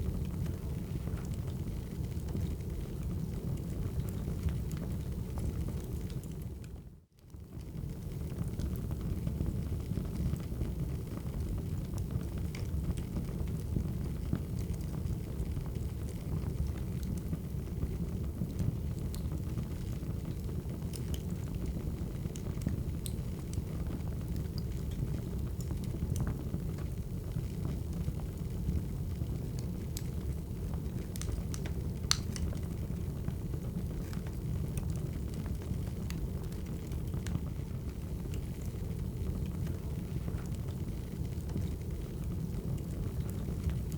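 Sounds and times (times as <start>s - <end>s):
wood fire crackling: 0.0s - 43.9s
sharp pops and snaps: 31.1s - 32.6s.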